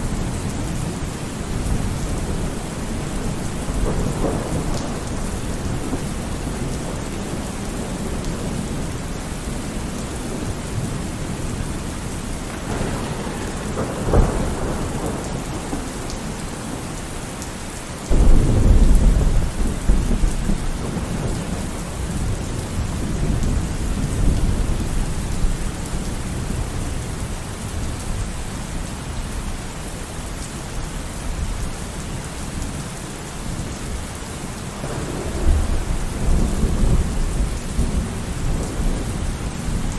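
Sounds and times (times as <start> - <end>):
thunder rumbling: 0.0 - 28.8, 34.4 - 39.9
heavy rain: 0.0 - 39.9
loud thunderclap: 0.1 - 9.0, 12.4 - 16.9, 18.1 - 26.6, 34.8 - 39.9.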